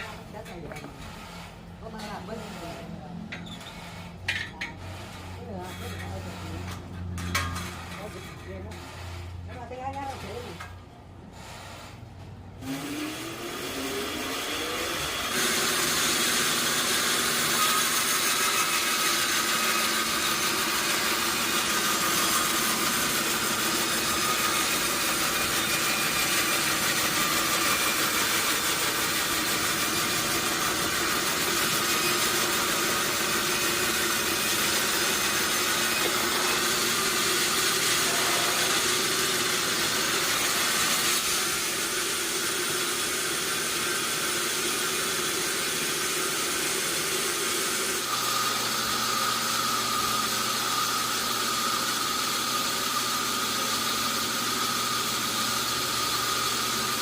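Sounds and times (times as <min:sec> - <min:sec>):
sawmill machinery hissing: 0:12.6 - 0:57.0.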